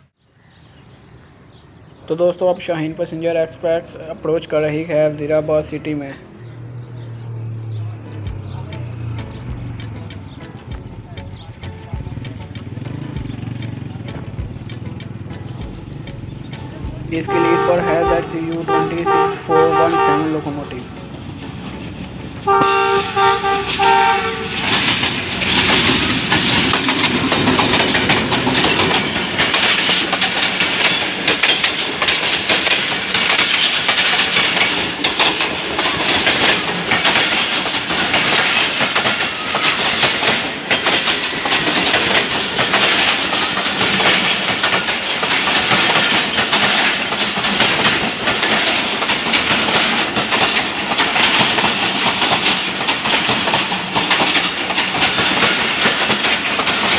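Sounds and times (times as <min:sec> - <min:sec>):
train coaches rumbling past: 0:00.0 - 0:56.9
wheels clacking over rail joints: 0:07.3 - 0:56.9
locomotive horn: 0:17.2 - 0:20.6, 0:22.4 - 0:24.9.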